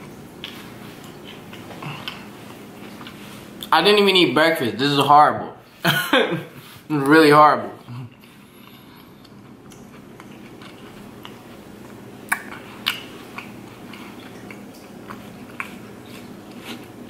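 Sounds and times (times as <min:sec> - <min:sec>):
wet mouth chewing smacks: 0:00.4 - 0:03.7, 0:09.2 - 0:17.0.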